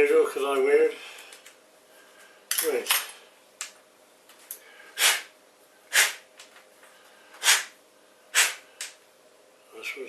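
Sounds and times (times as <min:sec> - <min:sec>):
file rasping on plastic: 0:05.9 - 0:06.2.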